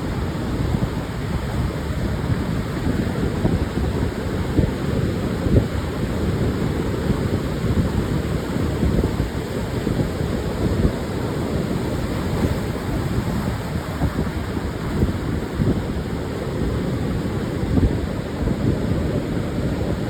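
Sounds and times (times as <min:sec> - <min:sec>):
surf washing onto beach: 0:00.0 - 0:20.0
wind buffeting microphone: 0:00.0 - 0:20.0.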